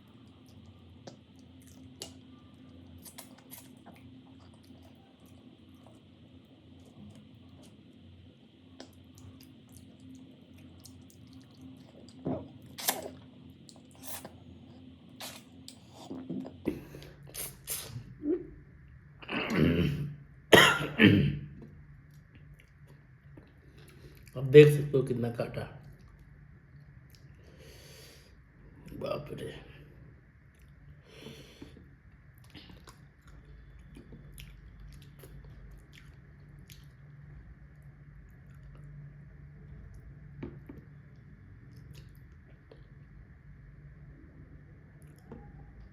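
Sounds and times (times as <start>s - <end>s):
faint low hum: 0.0s - 45.9s
wet chewing: 0.2s - 6.1s, 8.8s - 18.0s, 31.6s - 37.0s
lip smacks: 10.8s - 14.4s
crunchy bite: 12.2s - 13.2s.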